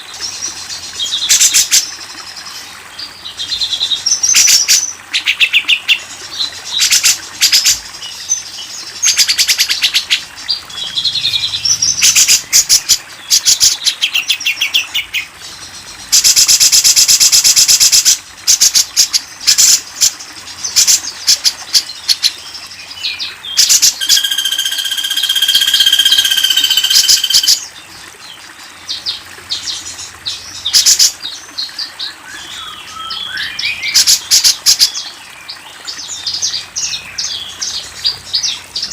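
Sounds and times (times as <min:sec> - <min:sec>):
songbirds chattering: 0:08.1 - 0:16.1
rapid bird trill: 0:23.6 - 0:27.7
held whistled bird note: 0:24.0 - 0:27.6.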